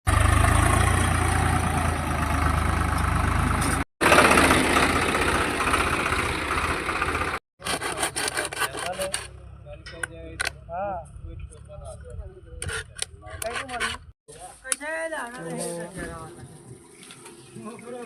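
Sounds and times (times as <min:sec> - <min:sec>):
tractor engine running hard: 0:00.1 - 0:07.4.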